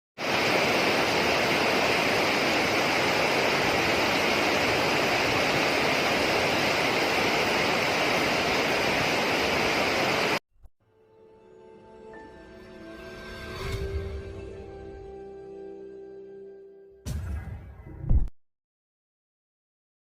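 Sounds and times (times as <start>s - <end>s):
heavy rain pouring: 0.2s - 10.4s.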